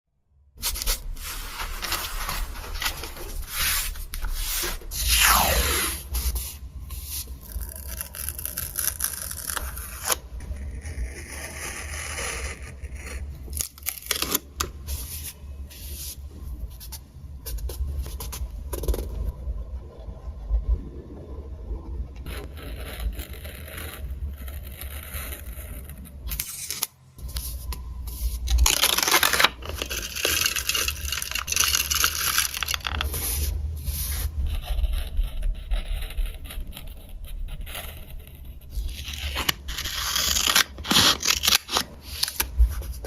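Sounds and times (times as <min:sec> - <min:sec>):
low steady hum: 0:00.5 - 0:43.0
paper and stickers rustling: 0:00.6 - 0:08.0, 0:26.3 - 0:35.6, 0:38.7 - 0:43.0.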